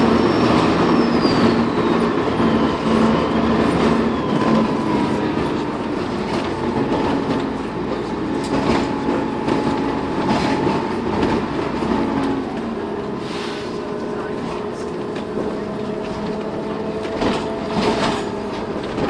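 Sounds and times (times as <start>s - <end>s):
turbocharger whistle: 0.0s - 5.2s
bus diesel engine running: 0.0s - 19.0s.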